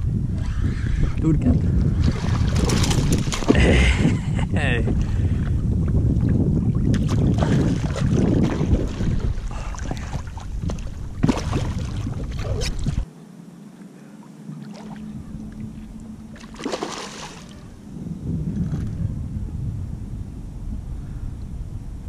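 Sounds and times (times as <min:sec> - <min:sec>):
wind rumbling on microphone: 0:00.0 - 0:22.0
water splashing around kayak: 0:01.9 - 0:03.9, 0:04.9 - 0:13.1, 0:14.5 - 0:17.7.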